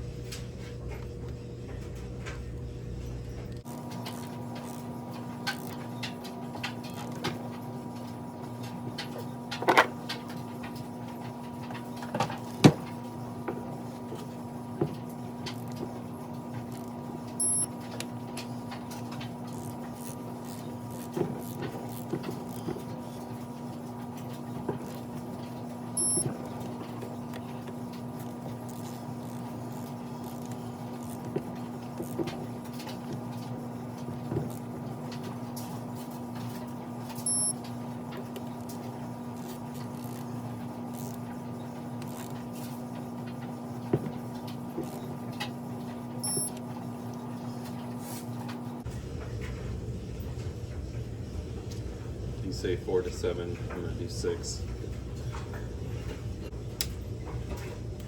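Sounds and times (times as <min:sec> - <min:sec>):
high-pitched electronic beeps: 0:17.4 - 0:17.7, 0:26.0 - 0:26.3, 0:37.3 - 0:37.5, 0:46.2 - 0:46.5.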